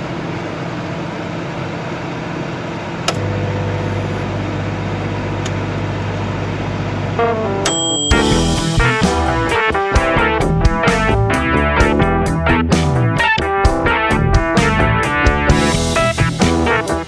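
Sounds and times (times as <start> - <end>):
microwave oven humming: 0.0 - 8.9.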